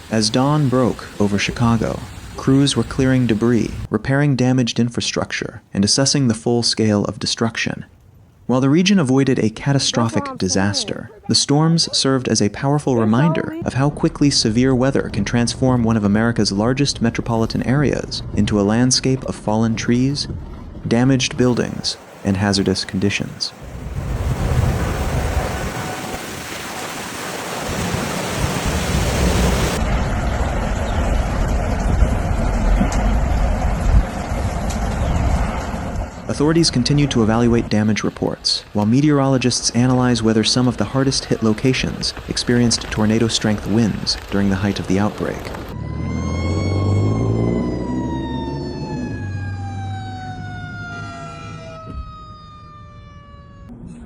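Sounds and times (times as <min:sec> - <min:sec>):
heavy rain: 0:00.0 - 0:03.9, 0:21.4 - 0:35.9, 0:39.4 - 0:45.8
wind rumble on microphone: 0:14.5 - 0:20.9, 0:23.5 - 0:26.2, 0:27.7 - 0:37.7
low rumble: 0:28.9 - 0:37.6
siren winding down: 0:45.7 - 0:54.0.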